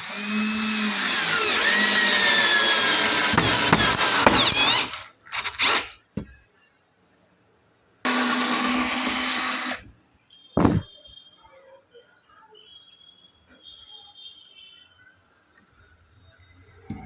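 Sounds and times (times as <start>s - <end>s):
electric power tool running: 0.0s - 5.8s, 8.1s - 9.8s.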